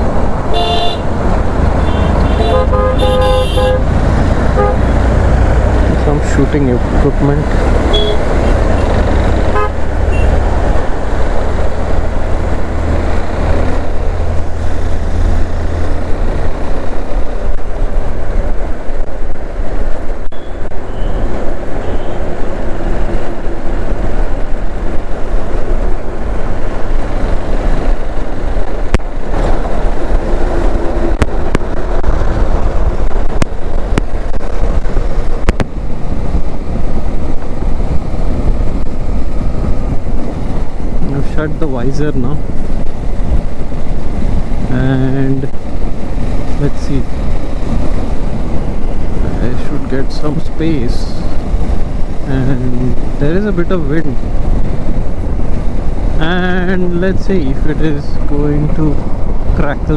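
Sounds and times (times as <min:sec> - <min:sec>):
motorcycle engine: 0:00.0 - 0:17.4
road traffic: 0:00.0 - 0:59.9
wind rumble on microphone: 0:00.0 - 0:59.9.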